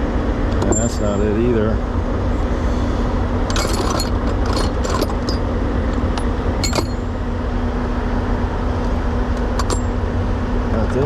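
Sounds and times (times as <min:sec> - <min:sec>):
diesel engine idling: 0:00.0 - 0:11.0
metal tools clinking: 0:00.6 - 0:01.2, 0:03.5 - 0:07.1.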